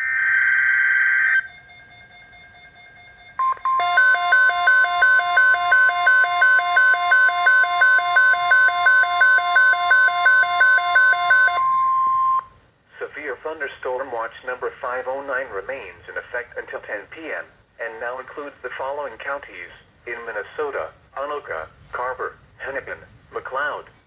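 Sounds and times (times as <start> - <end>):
rapid pulsing electronic beeps: 3.4 - 11.9
steady alert tone: 3.4 - 12.4.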